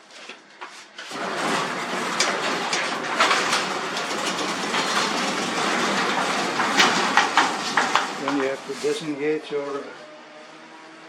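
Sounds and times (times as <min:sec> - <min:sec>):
garage door opener rumbling: 0:01.0 - 0:09.7
rollers rattling and clicking: 0:01.0 - 0:09.8.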